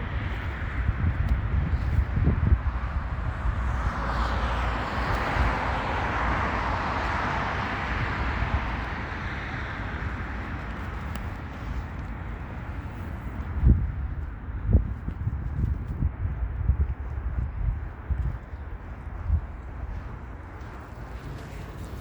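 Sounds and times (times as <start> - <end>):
vehicle passing: 3.0 - 10.6, 19.0 - 22.0.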